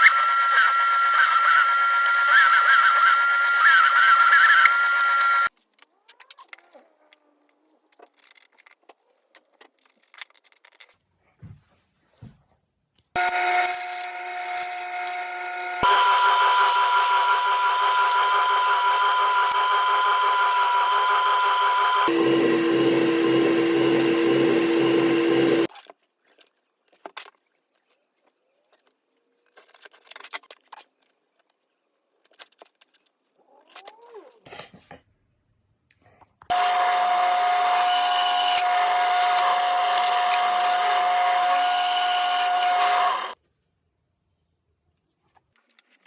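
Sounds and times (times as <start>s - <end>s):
power tool working wood: 0.0s - 5.5s, 13.2s - 25.7s, 36.5s - 43.4s.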